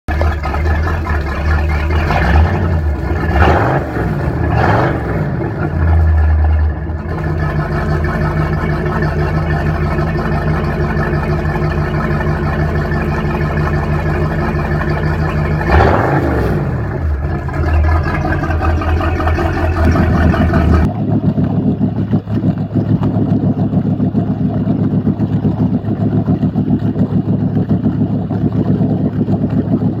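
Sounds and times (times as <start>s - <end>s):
boat engine idling and revving: 0.0s - 30.0s.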